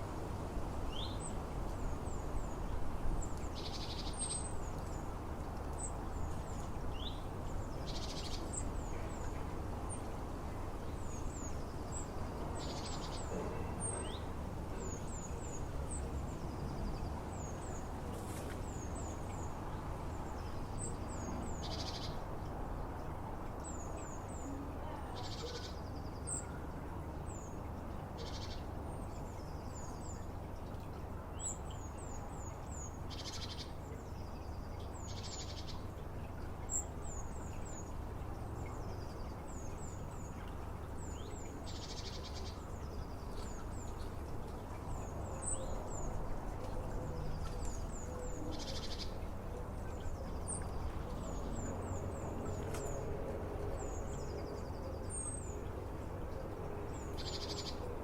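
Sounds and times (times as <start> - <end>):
small songbirds singing: 0.7 - 58.0.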